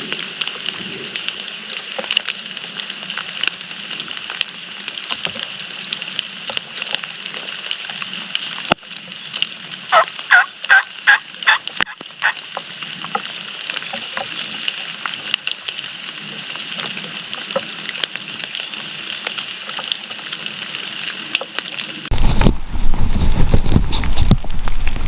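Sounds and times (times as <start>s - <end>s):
high wet woods hiss: 0.0s - 25.0s
rain drumming on a surface: 0.0s - 25.0s
wild turkey gobble: 9.9s - 12.4s.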